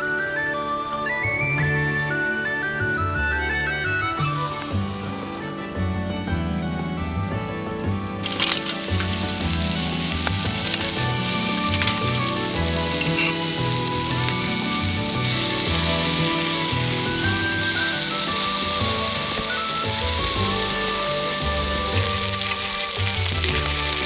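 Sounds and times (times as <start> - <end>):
faint background music: 0.0 - 24.0
food sizzling in a pan: 8.2 - 24.0.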